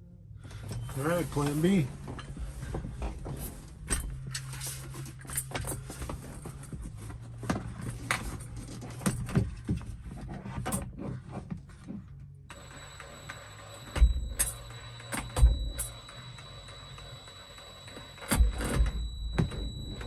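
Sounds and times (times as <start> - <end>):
steady low hum: 12.4 - 20.0.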